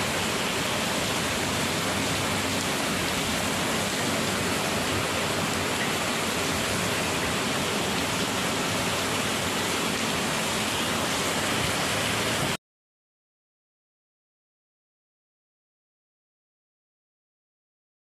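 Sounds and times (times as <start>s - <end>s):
heavy rain pouring: 0.0s - 12.6s.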